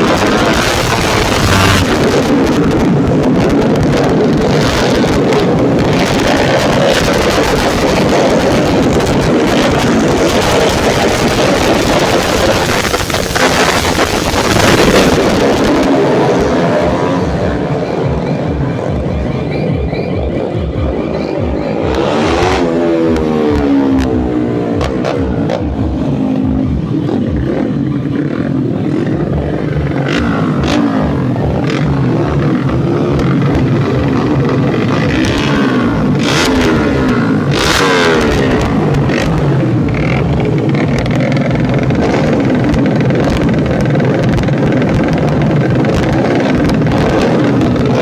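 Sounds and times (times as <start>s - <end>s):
racing motorcycle engines: 0.0s - 48.0s.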